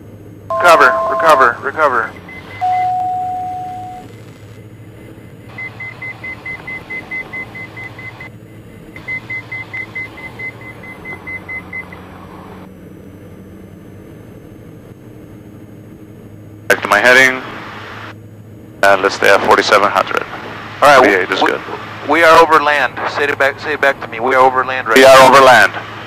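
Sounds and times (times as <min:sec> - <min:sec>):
aircraft engines droning: 0:00.0 - 0:26.0
short low tone: 0:00.5 - 0:01.6, 0:02.6 - 0:04.0
rapid high warning beeps: 0:00.5 - 0:04.1, 0:05.5 - 0:12.0.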